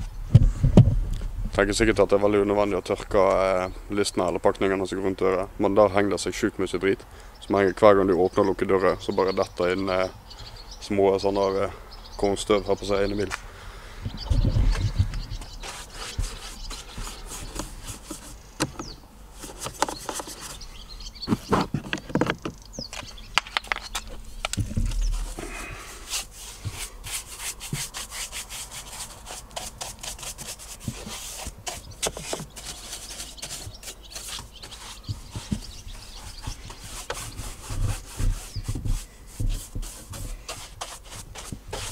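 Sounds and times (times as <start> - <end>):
brush scrubbing plastic panel: 15.4 - 20.6, 24.0 - 41.9.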